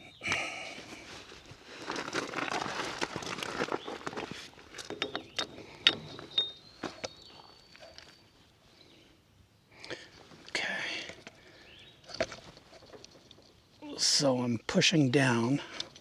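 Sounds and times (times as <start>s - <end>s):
metal rattling and scraping: 1.9s - 7.1s
metallic ring: 5.0s - 6.8s.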